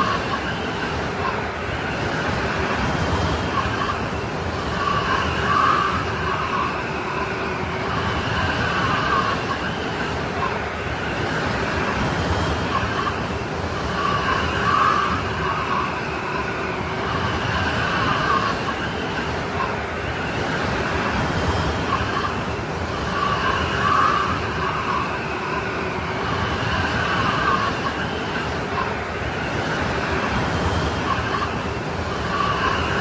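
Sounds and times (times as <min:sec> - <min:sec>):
strong wind blowing: 0:00.0 - 0:33.0
wind whistling: 0:00.0 - 0:33.0.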